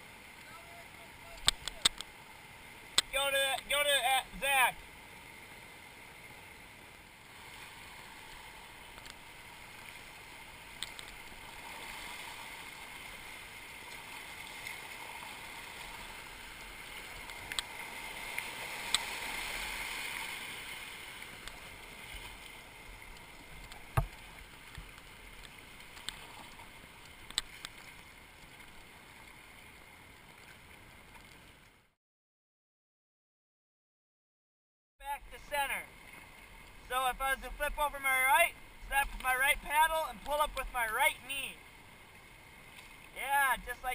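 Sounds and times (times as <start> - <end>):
rushing river water: 0.0 - 31.9, 35.0 - 43.9
kayak paddle clicks and knocks: 1.4 - 2.1, 8.9 - 9.2, 10.7 - 11.2, 18.8 - 19.1, 23.2 - 26.2, 27.0 - 28.0.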